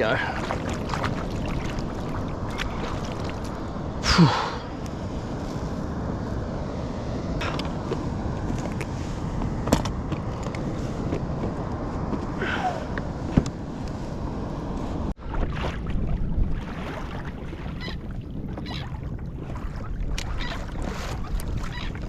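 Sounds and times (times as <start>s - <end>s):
water splashing against kayak hull: 0.0s - 3.7s, 15.2s - 22.0s
wind on microphone: 0.0s - 22.0s.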